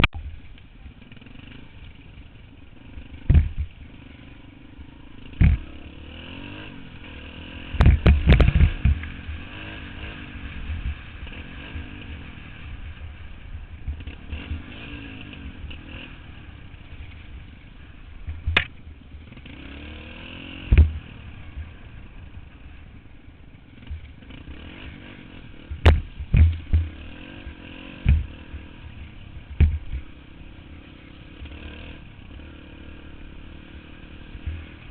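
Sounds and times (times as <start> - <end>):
dirt bike engine running: 0.0 - 34.9.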